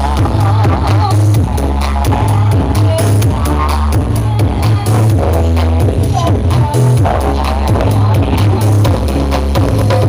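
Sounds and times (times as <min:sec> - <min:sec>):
loud electronic dance music: 0:00.0 - 0:10.0.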